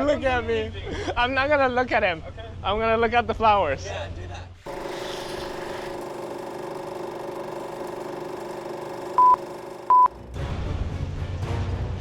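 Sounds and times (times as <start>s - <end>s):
steady electronic hum: 4.7s - 10.2s
short high beeps: 9.2s - 10.1s.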